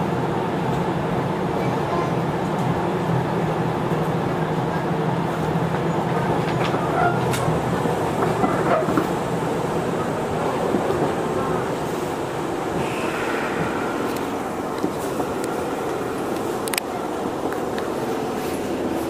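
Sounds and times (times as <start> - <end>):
train wheel-on-rail rumble: 0.0 - 19.0
low hum: 11.4 - 17.6.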